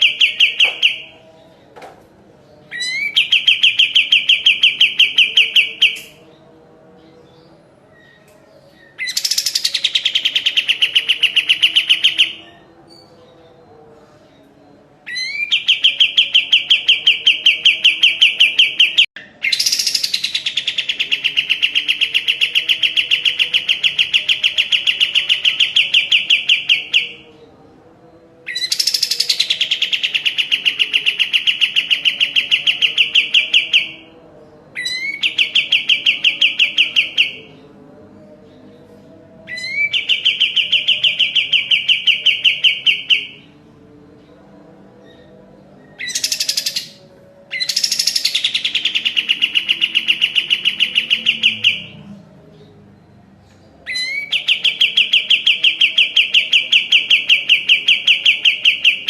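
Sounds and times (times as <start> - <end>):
songbird singing fast trills: 45.9 - 52.0.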